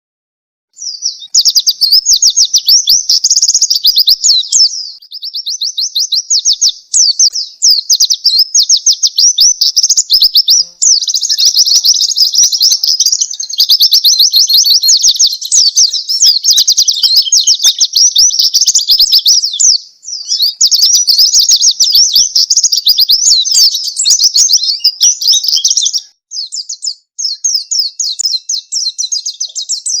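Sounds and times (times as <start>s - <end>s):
bird twittering song: 0.8s - 30.0s.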